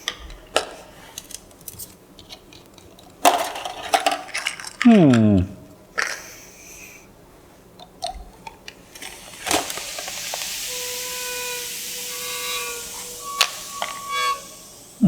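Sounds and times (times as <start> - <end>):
gas hissing with faint whistle: 8.7 - 15.0.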